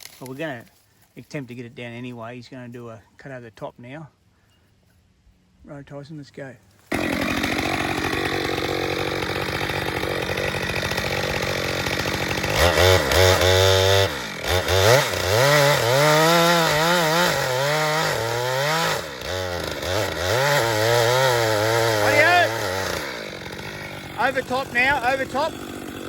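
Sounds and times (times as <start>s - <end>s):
chainsaw cutting wood: 6.8s - 26.0s.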